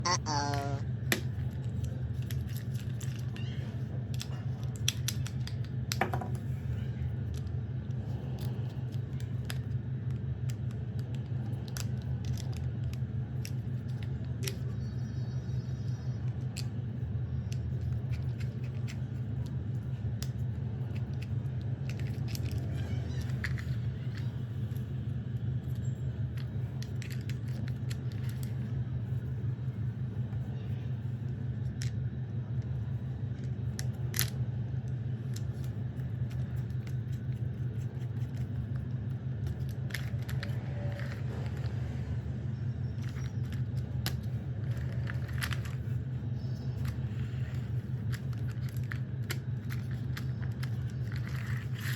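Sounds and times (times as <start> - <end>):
steady low hum: 0.0 - 51.9
plastic toy parts clicking: 4.1 - 6.2, 10.5 - 14.6, 43.0 - 45.8, 46.8 - 51.9.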